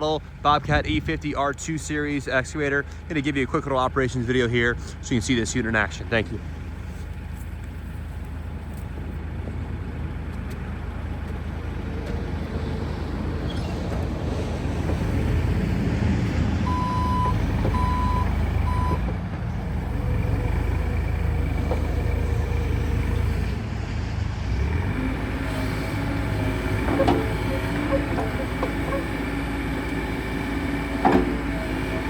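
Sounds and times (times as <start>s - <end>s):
excavator diesel engine running: 0.0s - 32.0s
short electronic beeps: 16.7s - 19.0s.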